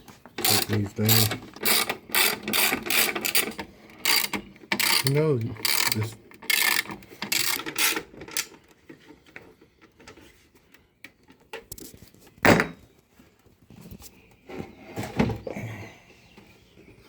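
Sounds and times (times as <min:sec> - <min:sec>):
socket ratchet clicking: 0:00.4 - 0:03.5, 0:04.1 - 0:08.5.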